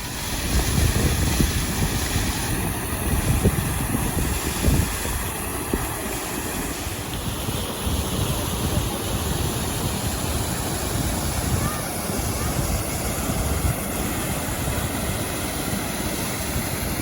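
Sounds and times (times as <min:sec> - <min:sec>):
waterfall rushing water: 0:00.0 - 0:17.0
wind buffeting microphone: 0:00.0 - 0:17.0.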